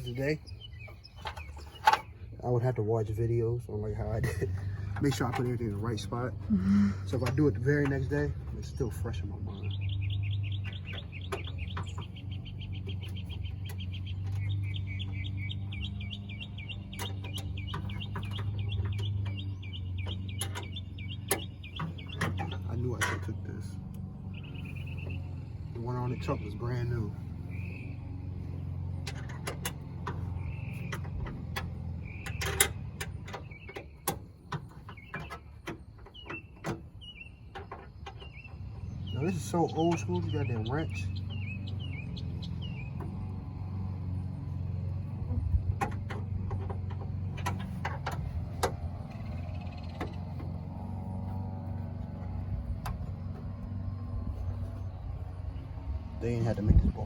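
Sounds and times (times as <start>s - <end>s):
bird chirping: 0.0s - 57.0s
hand tools clinking on metal: 20.2s - 23.7s.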